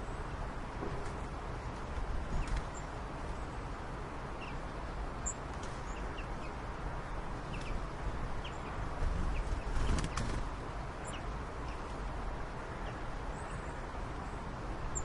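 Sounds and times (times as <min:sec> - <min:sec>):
low rumble and hiss: 0:00.0 - 0:15.0.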